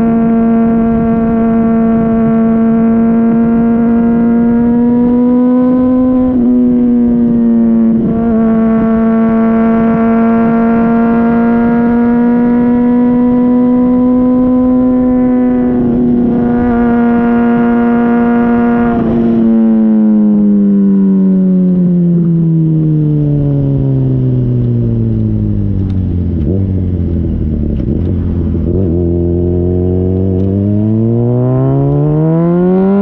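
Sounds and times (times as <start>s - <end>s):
motorcycle engine droning: 0.0s - 33.0s.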